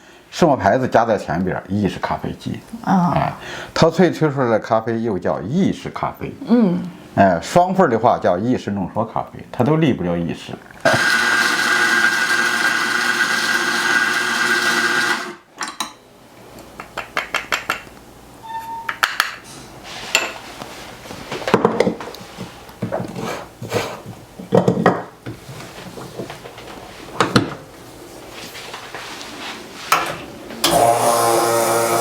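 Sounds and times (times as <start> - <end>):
electric coffee grinder: 10.8 - 15.4, 30.6 - 32.0.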